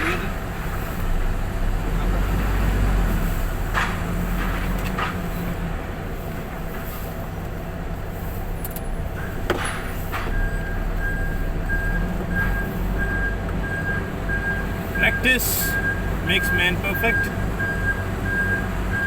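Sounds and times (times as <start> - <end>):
diesel truck engine idling: 0.0 - 19.0
reversing beeper: 10.4 - 19.0.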